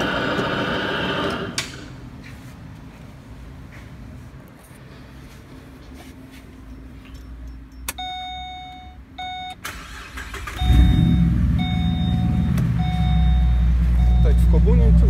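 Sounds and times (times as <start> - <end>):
car engine starting and idling: 0.0 - 2.0, 4.6 - 15.0
dashboard warning chime beeping: 6.6 - 15.0.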